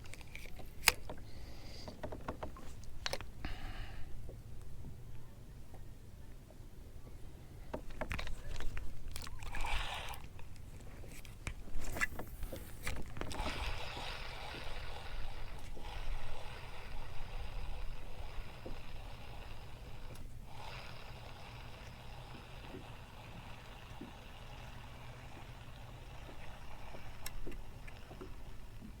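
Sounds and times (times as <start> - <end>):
water sloshing and splashing: 7.8 - 16.4.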